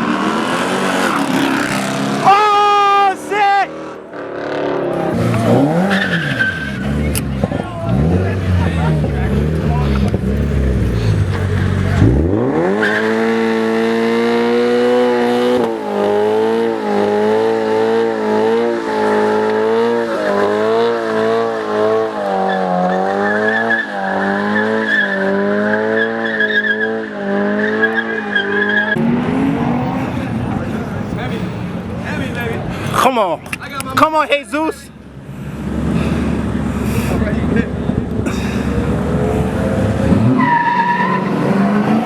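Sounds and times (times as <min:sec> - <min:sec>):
car engine revving hard: 0:00.0 - 0:02.3, 0:03.7 - 0:33.2, 0:35.2 - 0:42.0
tyres squealing: 0:05.0 - 0:13.6, 0:27.7 - 0:35.0.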